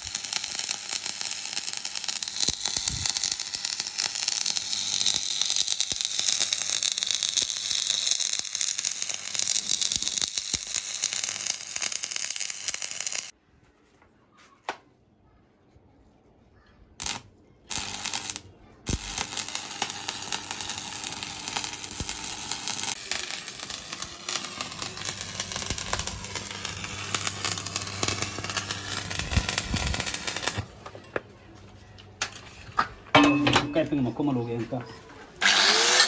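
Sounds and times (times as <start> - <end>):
welding arc burning: 0.0 - 13.3, 17.0 - 30.8, 35.4 - 36.0.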